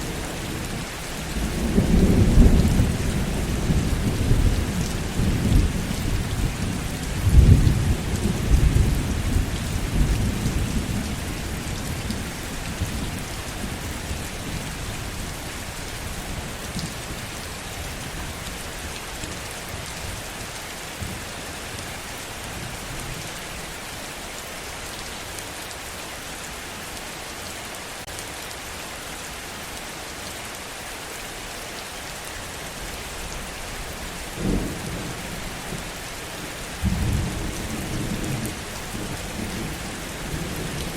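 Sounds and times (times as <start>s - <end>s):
thunder rumbling: 0.0s - 17.3s, 34.0s - 40.9s
heavy rain falling: 0.0s - 40.9s.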